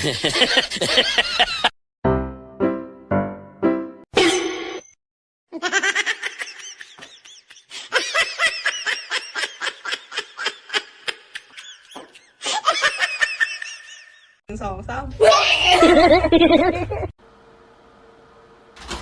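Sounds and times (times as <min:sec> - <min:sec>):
person laughing hard: 0:00.0 - 0:01.7, 0:05.6 - 0:14.4, 0:15.6 - 0:17.1.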